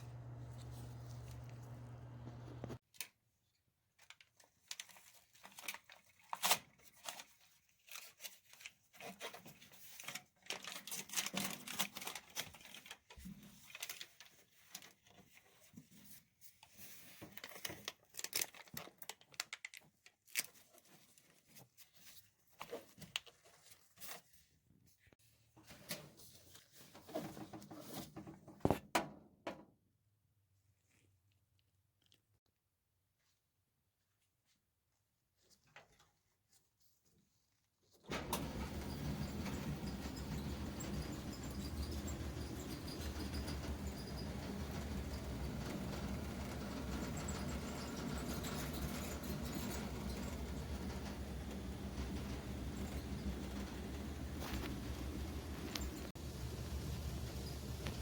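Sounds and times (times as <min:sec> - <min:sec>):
steady low hum: 0:00.0 - 0:02.8
foil tape crinkling and tearing: 0:10.0 - 0:15.0, 0:17.2 - 0:21.2.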